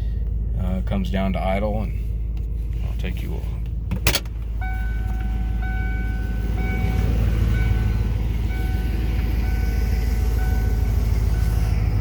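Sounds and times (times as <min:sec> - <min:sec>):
car engine idling: 0:00.0 - 0:12.0
car warning chime: 0:04.6 - 0:11.7.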